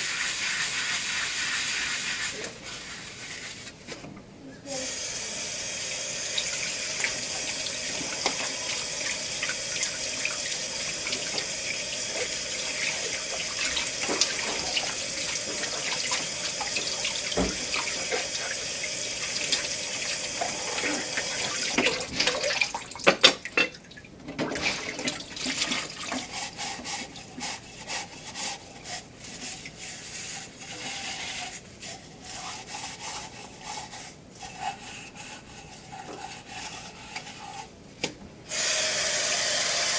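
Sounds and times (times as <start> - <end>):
tap water running into sink: 5.8 - 27.9
dishes clattering: 20.5 - 25.0.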